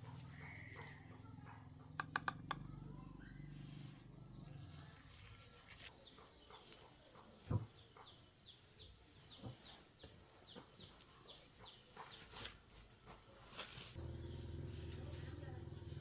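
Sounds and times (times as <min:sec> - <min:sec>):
bird chirping: 0:00.0 - 0:13.4
quiet clicks: 0:02.0 - 0:02.7.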